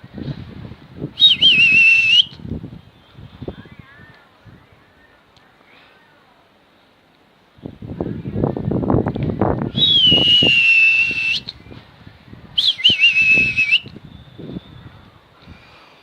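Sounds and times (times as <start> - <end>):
person whistling: 1.2 - 2.4, 9.8 - 11.5, 12.6 - 14.8.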